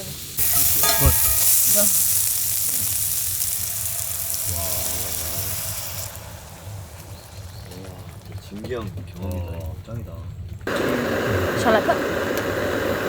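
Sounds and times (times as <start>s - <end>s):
sauce sizzling in a pan: 0.0s - 8.4s.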